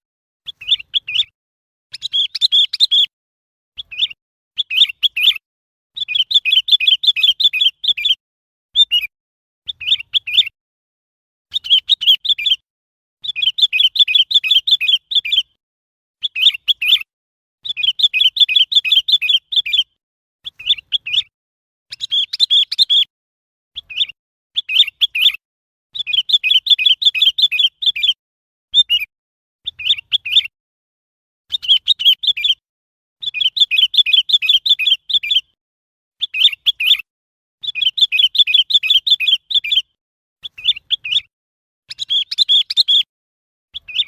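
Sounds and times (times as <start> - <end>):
bird chirping: 0.4 - 3.1, 3.8 - 5.4, 6.0 - 10.6, 11.5 - 12.6, 13.2 - 15.6, 16.2 - 21.3, 21.9 - 23.1, 23.7 - 25.4, 26.0 - 28.2, 28.8 - 30.5, 31.5 - 32.6, 33.2 - 35.6, 36.2 - 41.3, 41.9 - 43.1, 43.7 - 44.0.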